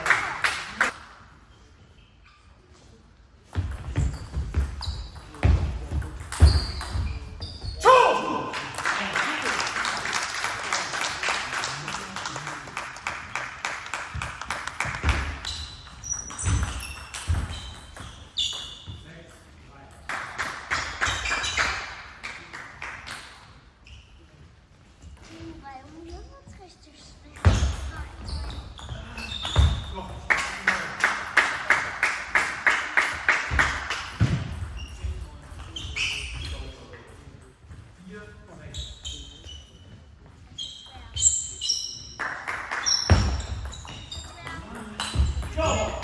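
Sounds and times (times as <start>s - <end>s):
people clapping: 0.0s - 1.0s, 8.2s - 15.6s, 20.1s - 23.4s, 30.2s - 34.2s, 42.2s - 43.2s
short high squeaks: 15.4s - 19.0s, 35.7s - 36.7s, 38.7s - 42.2s.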